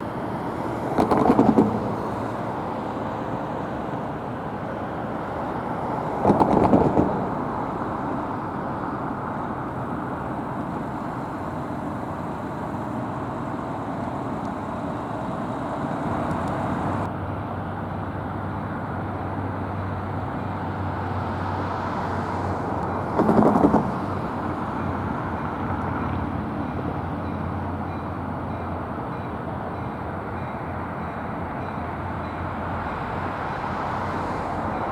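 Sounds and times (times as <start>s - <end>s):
loud vehicle passes: 0.0s - 17.1s
street traffic noise: 0.0s - 34.9s.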